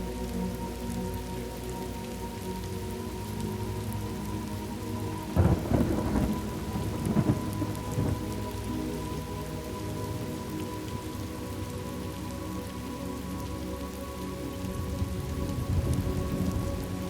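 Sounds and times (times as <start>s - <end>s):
steady rain: 0.0s - 17.0s
thunder rumbling: 5.3s - 8.7s.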